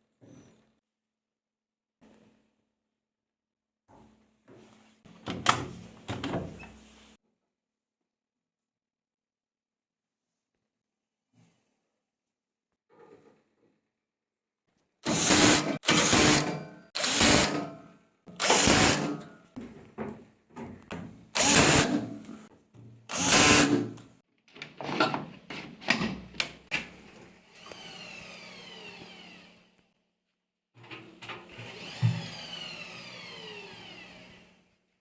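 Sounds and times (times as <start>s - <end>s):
power drill bursts: 15.0s - 17.8s, 18.4s - 19.2s, 21.4s - 22.1s, 23.1s - 24.0s, 27.6s - 29.8s, 31.7s - 34.6s.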